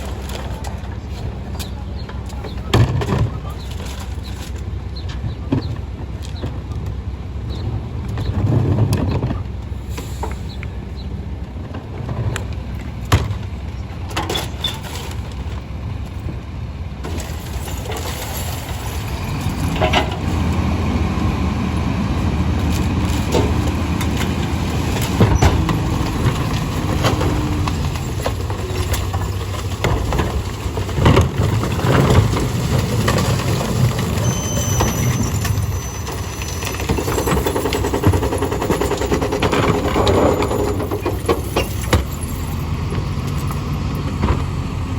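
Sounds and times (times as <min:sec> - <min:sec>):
garbage truck engine running: 0:00.0 - 0:44.9
knocks and clanks: 0:17.0 - 0:44.5.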